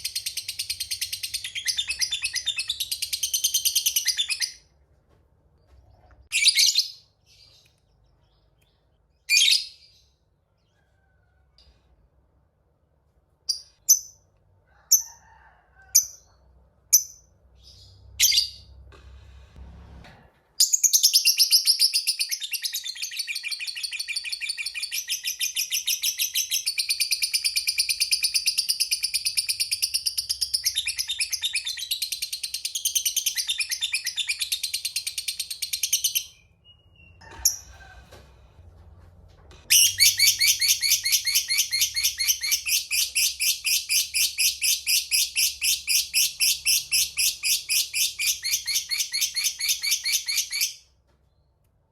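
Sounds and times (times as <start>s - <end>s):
lovebird chirping: 0.0s - 4.7s, 16.9s - 18.8s, 39.7s - 50.8s.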